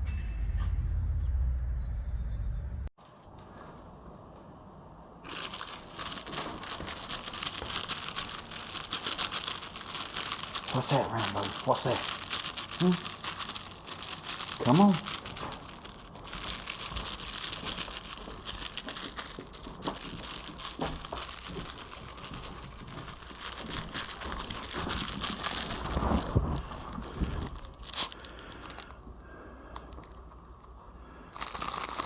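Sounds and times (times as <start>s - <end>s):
crinkling and rustling: 5.2s - 32.0s.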